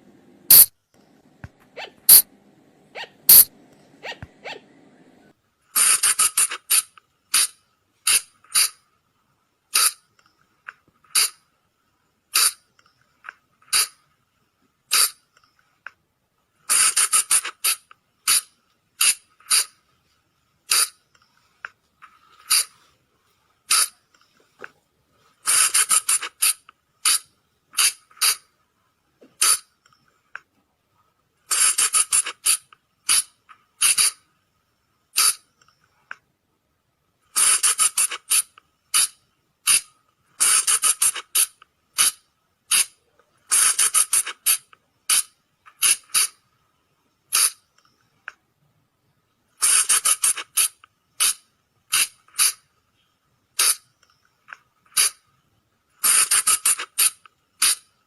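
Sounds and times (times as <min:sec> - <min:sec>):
clicks: 0:03.3 - 0:04.4.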